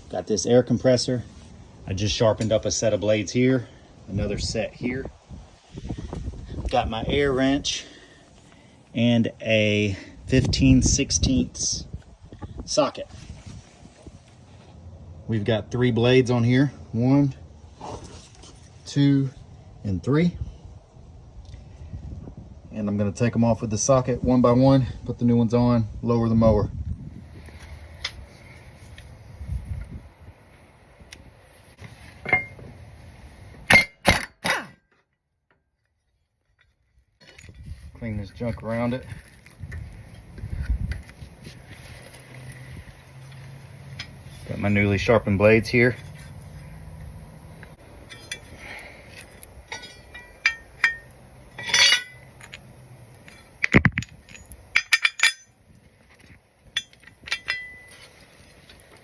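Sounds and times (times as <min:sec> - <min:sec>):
metal parts clinking: 0:48.0 - 0:52.6, 0:53.2 - 0:55.6, 0:56.2 - 0:59.0
tools clanking on metal blade: 0:49.7 - 0:52.6, 0:56.8 - 0:58.1.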